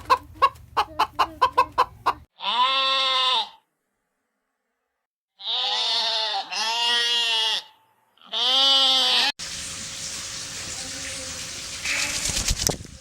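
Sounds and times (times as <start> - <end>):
goat bleating: 2.4 - 3.6, 5.4 - 9.3.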